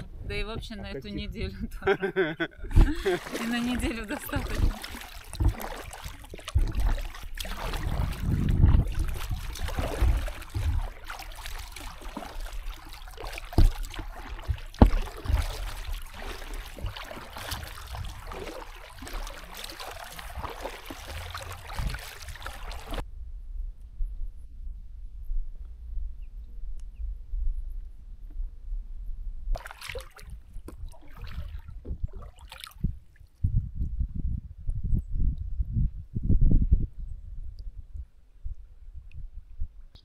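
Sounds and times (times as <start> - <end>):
water splashing from paddle strokes: 2.7 - 23.0, 29.6 - 32.9.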